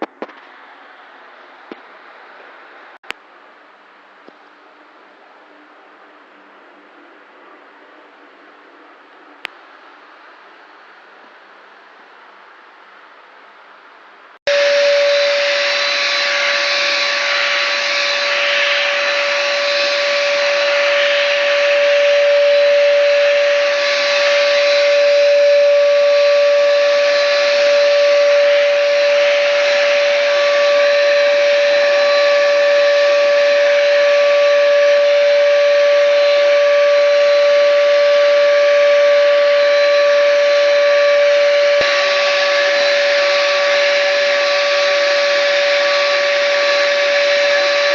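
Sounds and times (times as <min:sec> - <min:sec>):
spray gun motor whine: 0:14.5 - 0:47.9.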